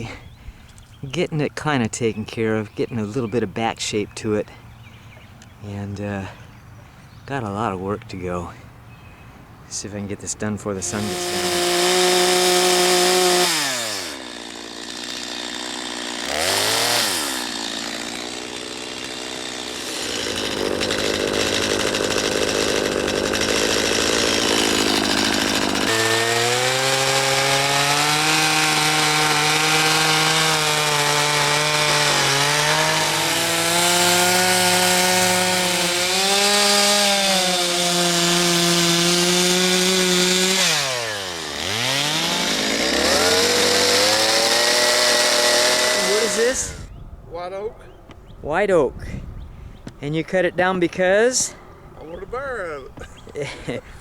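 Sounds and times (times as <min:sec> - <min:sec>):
chainsaw cutting wood: 0:10.4 - 0:46.9.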